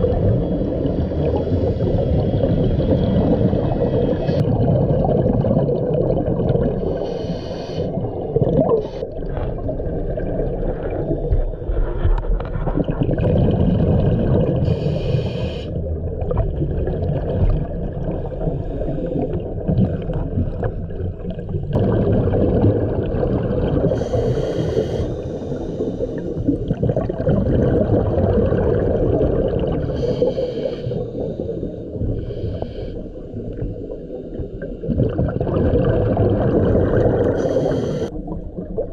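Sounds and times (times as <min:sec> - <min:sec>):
bubbles rumbling and gurgling: 0:00.0 - 0:38.9
diver inhaling through regulator: 0:06.9 - 0:08.1, 0:14.6 - 0:15.8, 0:23.8 - 0:26.7, 0:29.8 - 0:34.7, 0:37.0 - 0:38.2.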